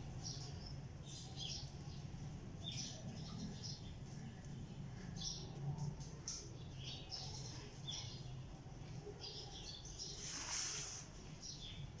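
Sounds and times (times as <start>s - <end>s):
small birds chirping: 0.0s - 12.0s
hissing burst of noise: 10.2s - 11.2s.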